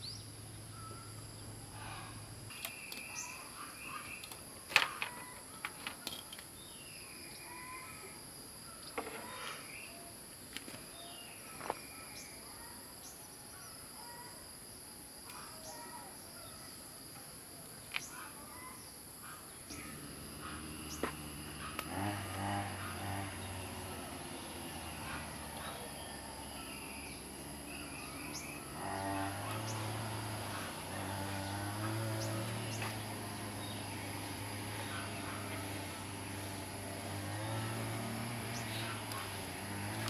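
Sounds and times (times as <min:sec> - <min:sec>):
bird chirps: 0:00.0 - 0:04.6, 0:24.4 - 0:30.8
crickets chirring: 0:00.0 - 0:40.0.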